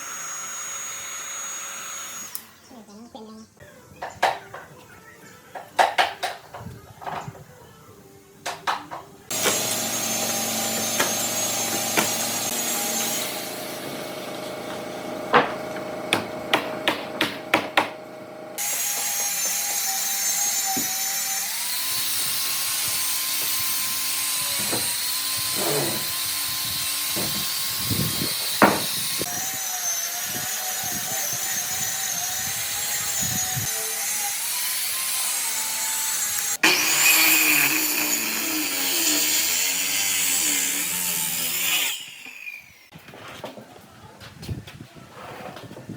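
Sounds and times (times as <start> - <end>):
power tool cutting wood: 0.0 - 2.6, 9.3 - 42.9
sharp knocks: 15.3 - 18.0.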